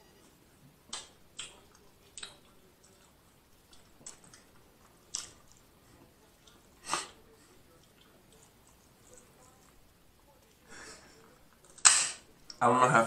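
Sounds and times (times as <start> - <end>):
wet mouth smacks while chewing: 3.7 - 5.7.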